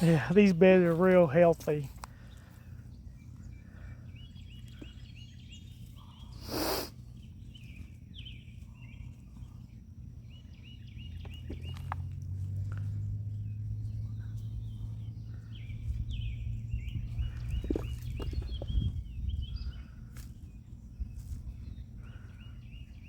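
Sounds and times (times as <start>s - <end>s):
bird chirping: 0.0s - 23.0s
low steady hum: 0.0s - 23.0s
rustling scrape in soil: 17.1s - 19.0s.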